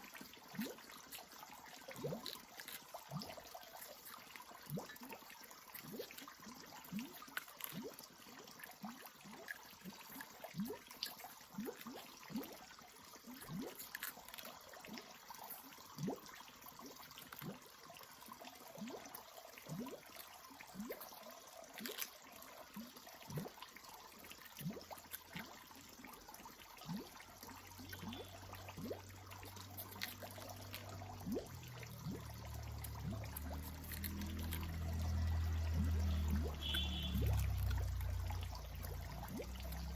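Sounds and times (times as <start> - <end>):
water trickling and dripping: 0.0 - 39.9
low steady hum: 27.8 - 39.9.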